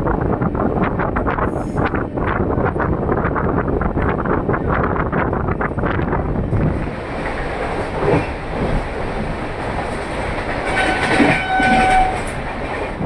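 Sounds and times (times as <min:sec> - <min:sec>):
train running noise: 0:00.0 - 0:13.0
train horn: 0:10.6 - 0:12.4.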